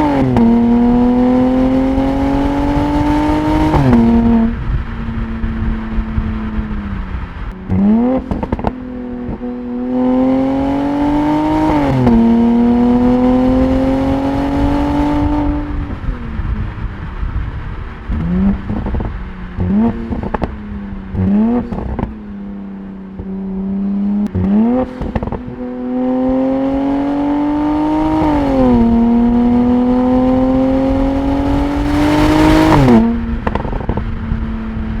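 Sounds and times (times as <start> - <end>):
car engine revving: 0.0 - 35.0
exhaust cracks: 6.4 - 9.4.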